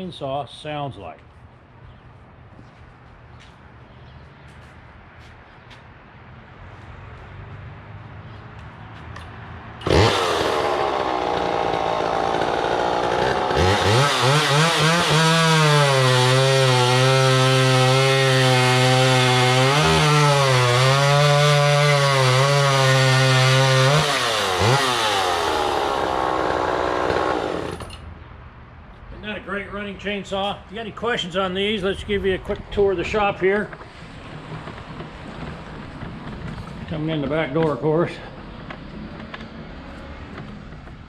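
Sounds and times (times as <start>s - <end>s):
chainsaw starting and revving: 9.8s - 27.9s.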